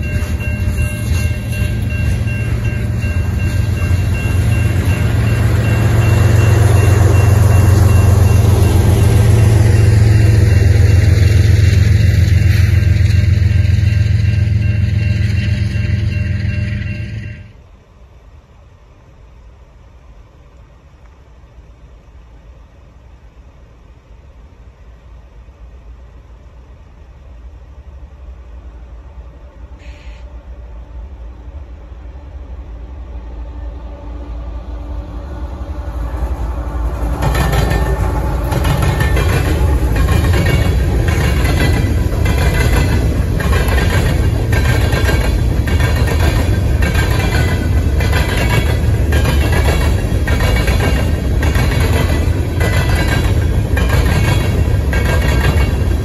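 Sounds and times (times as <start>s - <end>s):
freight train approaching: 0.0s - 56.0s
wheels clacking over rail joints: 37.0s - 56.0s.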